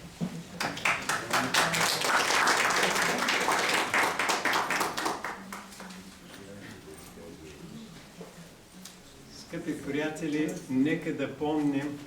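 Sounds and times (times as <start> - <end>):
audience applauding: 0.6 - 5.7.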